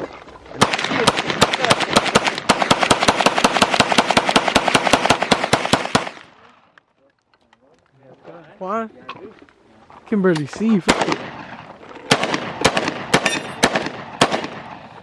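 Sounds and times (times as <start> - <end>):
rapid overlapping gunshots: 0.5 - 6.4, 10.6 - 15.0.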